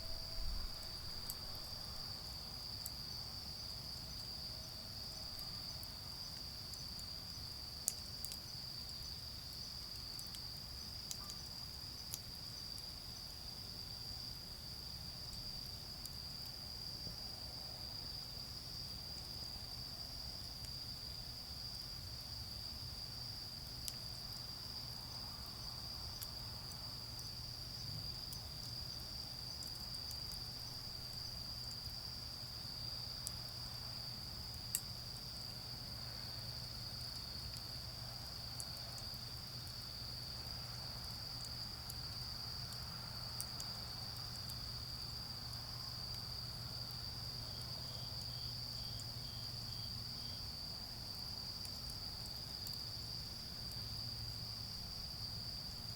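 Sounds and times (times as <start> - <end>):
charcoal fire crackling: 0.0 - 4.4, 25.1 - 47.0
crickets trilling: 0.0 - 55.9
faint pulsing insect call: 0.0 - 55.9.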